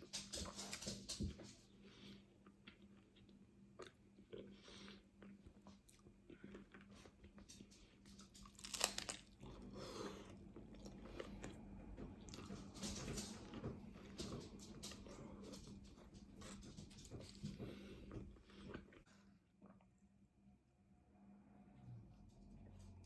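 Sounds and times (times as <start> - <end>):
taco shell crunching: 8.2 - 9.6.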